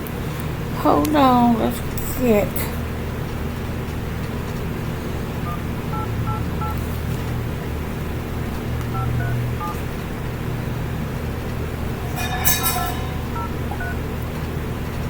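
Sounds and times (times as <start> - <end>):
steady low hum: 0.0 - 15.0
phone keypad touch-tones: 5.5 - 6.8, 8.9 - 9.8.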